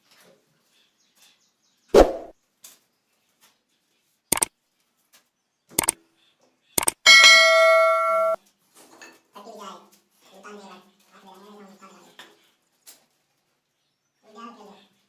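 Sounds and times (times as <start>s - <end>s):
metallic ding ringing: 7.1s - 8.4s.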